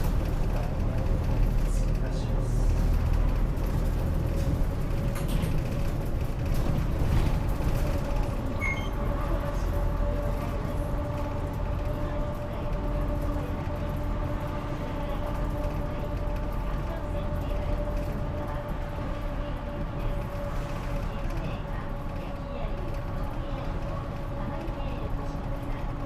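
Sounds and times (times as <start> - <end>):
bus engine rumble: 0.0 - 26.0
short high squeak: 8.6 - 9.0.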